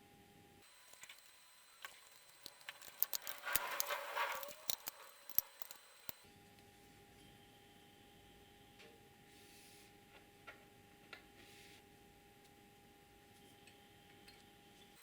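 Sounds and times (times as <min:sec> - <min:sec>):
small hard parts clicking: 0:00.6 - 0:06.2.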